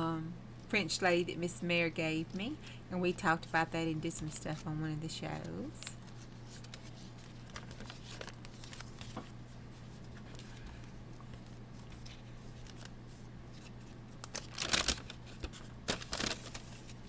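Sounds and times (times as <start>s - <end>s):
crinkling paper rustle: 5.4s - 17.0s
paper pages rustling: 6.0s - 17.0s.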